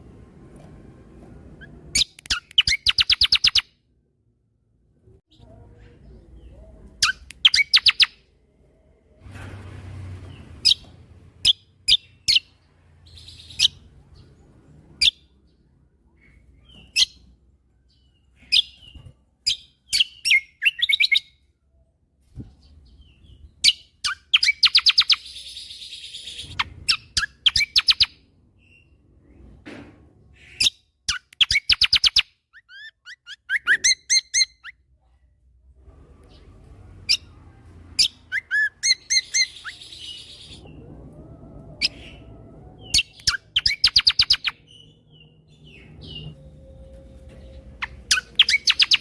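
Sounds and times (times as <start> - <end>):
songbird whistling and trilling: 1.6 - 3.7, 7.0 - 8.2, 17.9 - 21.4, 23.0 - 29.0, 30.4 - 34.8, 38.0 - 40.9, 41.8 - 49.0.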